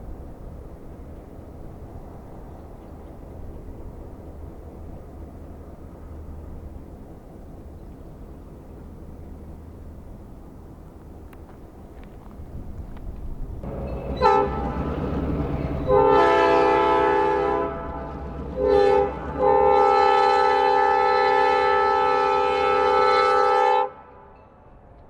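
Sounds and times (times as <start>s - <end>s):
low train engine rumble: 0.0s - 25.0s
locomotive air horn blasts: 13.6s - 24.4s.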